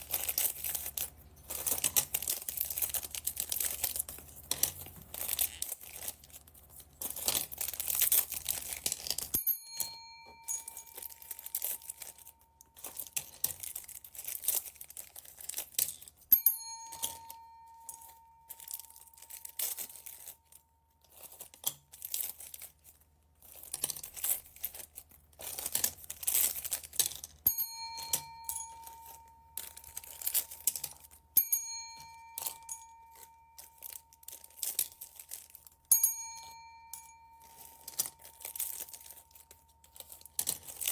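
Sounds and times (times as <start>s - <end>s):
plastic bags crinkling and tearing: 0.0s - 9.4s, 10.6s - 16.3s, 17.2s - 27.4s, 28.0s - 36.0s, 37.4s - 40.9s
bell-like chime: 9.4s - 13.1s, 16.3s - 20.3s, 27.5s - 40.8s.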